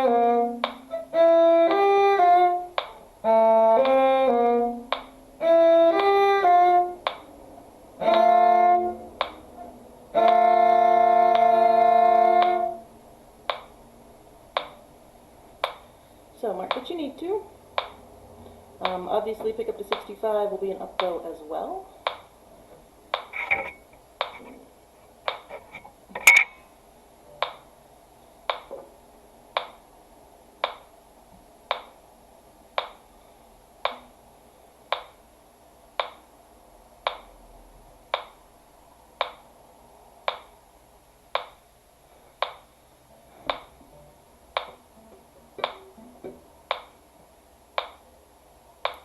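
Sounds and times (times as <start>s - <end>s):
metronome ticking: 0.0s - 7.3s, 8.0s - 13.8s, 14.5s - 14.9s, 15.6s - 15.9s, 16.6s - 18.0s, 18.8s - 22.4s, 23.1s - 24.6s, 25.2s - 25.5s, 27.3s - 27.7s, 28.4s - 28.8s, 29.5s - 29.8s, 30.6s - 30.9s, 31.7s - 32.0s, 32.8s - 33.0s, 33.8s - 34.2s, 34.9s - 35.2s, 36.0s - 36.3s, 37.0s - 37.4s, 38.1s - 38.4s, 39.2s - 39.5s, 40.3s - 40.6s, 41.4s - 41.6s, 42.4s - 42.7s, 43.5s - 47.0s, 47.7s - 48.1s.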